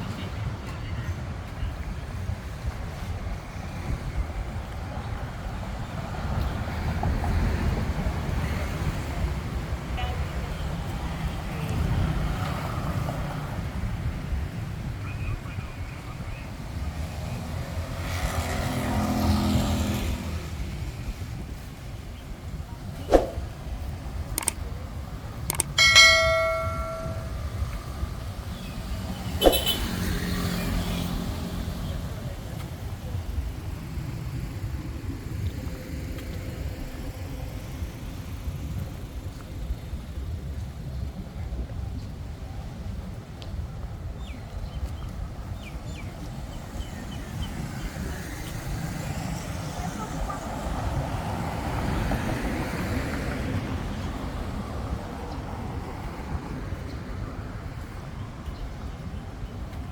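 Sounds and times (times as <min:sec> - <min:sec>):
low street rumble: 0:00.0 - 0:59.9
sharp clicks: 0:24.4 - 0:24.6, 0:25.5 - 0:26.4
metallic bell strike: 0:25.5 - 0:27.8.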